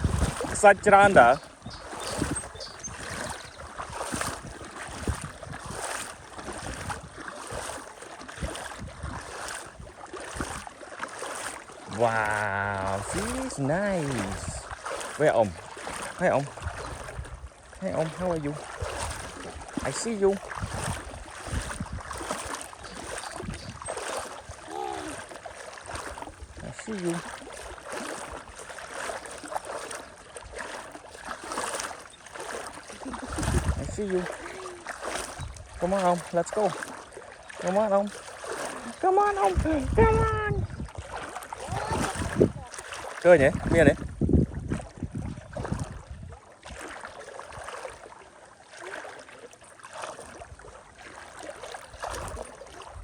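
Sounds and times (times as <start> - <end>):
wind buffeting microphone: 0.0 - 10.7, 11.9 - 28.7, 32.6 - 36.0, 38.2 - 46.8, 51.9 - 53.0
running water trickling: 0.0 - 53.0.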